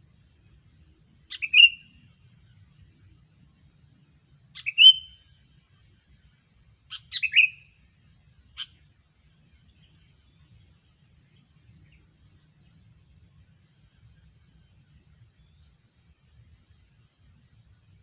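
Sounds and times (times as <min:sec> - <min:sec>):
bird chirping calls: 0:01.3 - 0:02.0, 0:04.6 - 0:05.2, 0:06.9 - 0:07.7.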